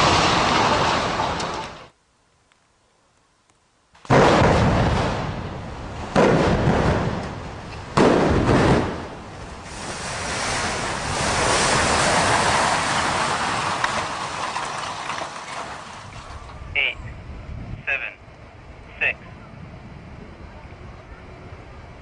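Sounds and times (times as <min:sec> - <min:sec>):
rushing rumble of building collapse: 0:00.0 - 0:01.9, 0:04.1 - 0:16.8
demolition blasts echoing: 0:04.0 - 0:16.8.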